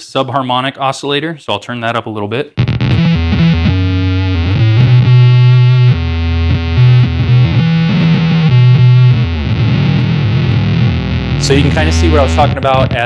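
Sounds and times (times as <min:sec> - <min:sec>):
synth-like electric guitar notes: 0:02.6 - 0:13.0.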